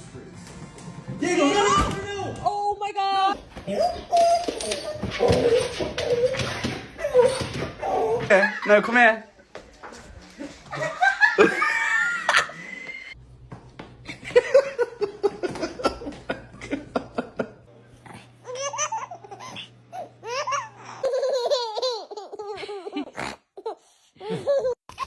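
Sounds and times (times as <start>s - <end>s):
person laughing: 10.7s - 13.1s.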